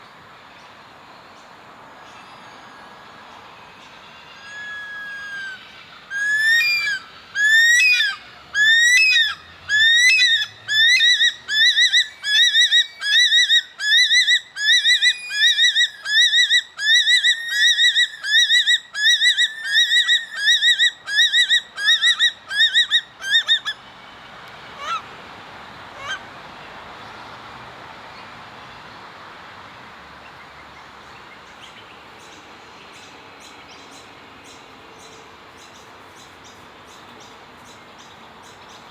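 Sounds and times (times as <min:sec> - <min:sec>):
bird wailing call: 0:04.2 - 0:23.8, 0:24.8 - 0:25.0, 0:26.0 - 0:26.2.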